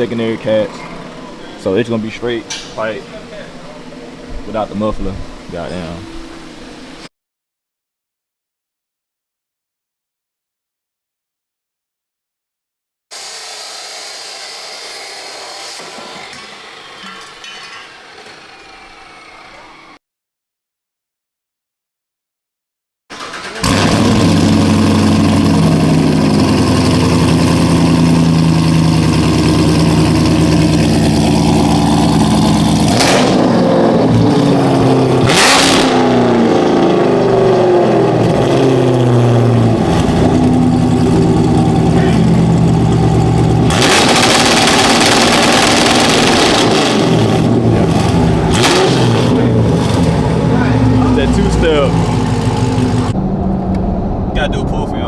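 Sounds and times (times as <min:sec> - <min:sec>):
car engine revving: 0:23.1 - 0:55.0
loud exhaust rushing bursts: 0:23.6 - 0:55.0.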